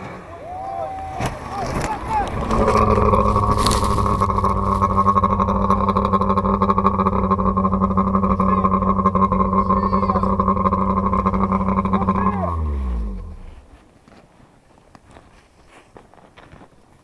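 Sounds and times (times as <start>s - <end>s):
snow thrown over camera: 1.3s - 6.3s
car engine running at high speed: 2.4s - 13.8s.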